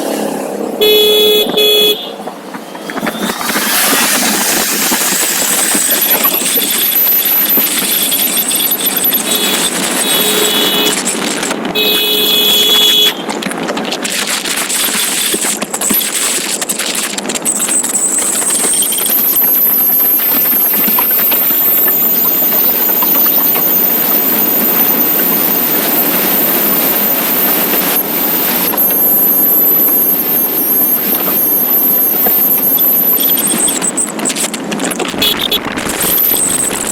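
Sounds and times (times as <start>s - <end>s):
motorcycle engine: 0.0s - 14.0s, 33.1s - 36.9s
wind and road noise: 0.0s - 36.9s.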